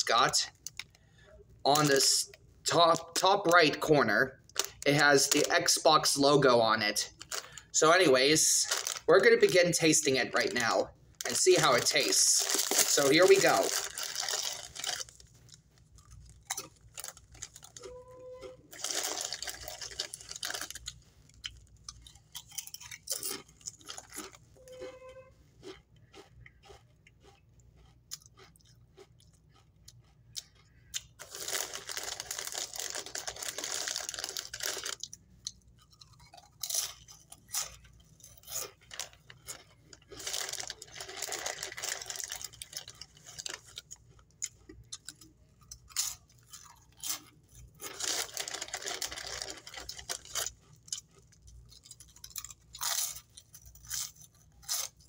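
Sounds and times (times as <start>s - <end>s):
person crunching chips: 1.7s - 3.9s, 4.5s - 25.0s, 25.6s - 55.0s
foil bag crinkling: 7.2s - 18.0s, 18.7s - 20.9s, 31.2s - 35.0s, 38.3s - 44.0s, 47.8s - 50.9s.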